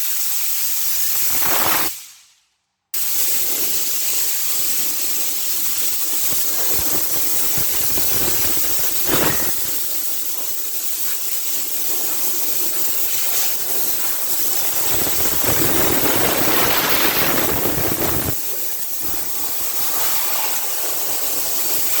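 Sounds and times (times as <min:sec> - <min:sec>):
hissing spray: 0:00.0 - 0:02.4, 0:03.0 - 0:22.0
sharp knock: 0:09.0 - 0:09.8.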